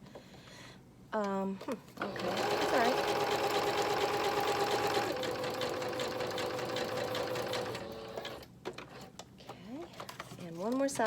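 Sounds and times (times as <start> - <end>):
electric sewing machine running: 2.0 - 8.5.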